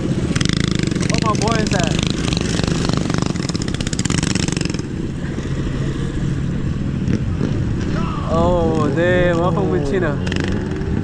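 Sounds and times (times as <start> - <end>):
small motorbike engine: 0.0 - 7.6.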